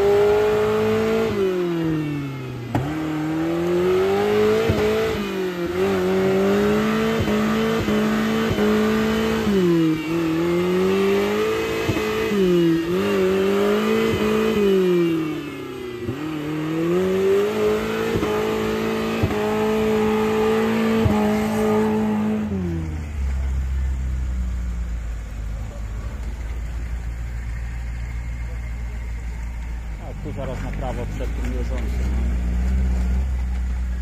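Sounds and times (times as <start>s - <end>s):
engine revving under load: 0.0s - 34.0s
low steady rumble: 22.6s - 34.0s.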